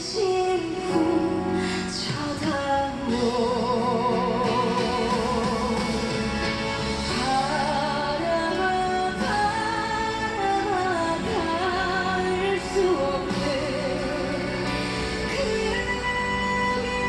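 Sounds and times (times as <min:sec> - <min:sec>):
sung melody with vibrato: 0:00.0 - 0:17.0
instrumental accompaniment: 0:01.0 - 0:17.0.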